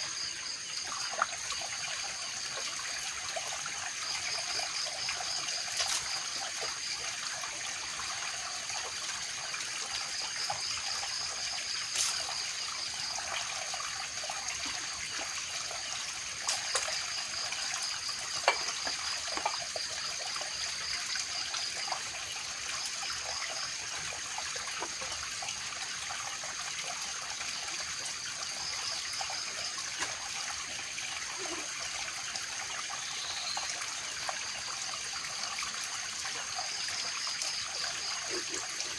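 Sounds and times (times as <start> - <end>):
water trickling: 0.0 - 38.9.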